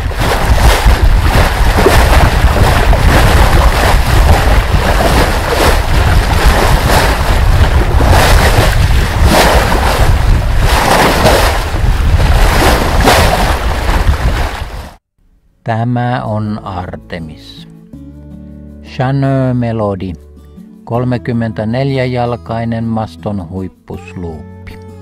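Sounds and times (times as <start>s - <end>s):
waves rushing and splashing: 0.0s - 15.0s
wind buffeting microphone: 0.0s - 15.0s.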